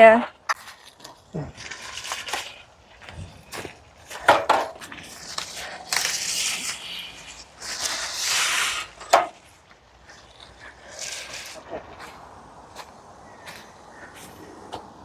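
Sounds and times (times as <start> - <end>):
netting rustling against leaves: 0.4 - 4.2, 4.8 - 15.0.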